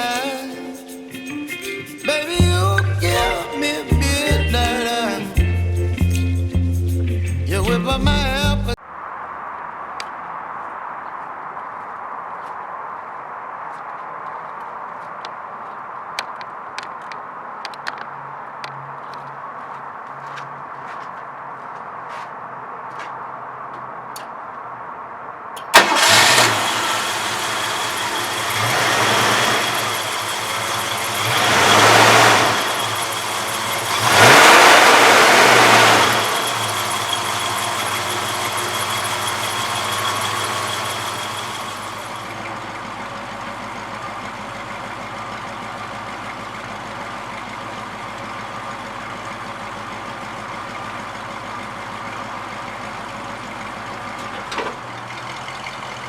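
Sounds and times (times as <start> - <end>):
car engine idling and revving: 25.7 - 56.0.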